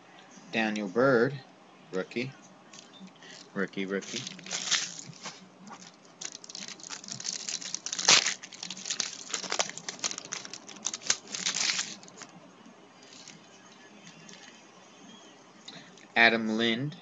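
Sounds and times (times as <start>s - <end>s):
foil wrapper crinkling: 3.2s - 12.3s
cards being handled: 3.3s - 12.3s.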